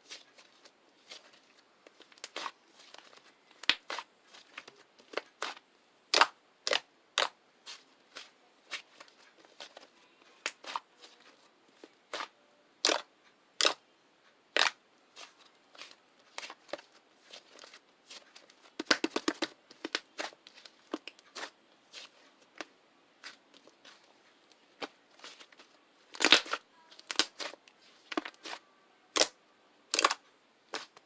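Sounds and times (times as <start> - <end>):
crackling pops: 26.1 - 28.5.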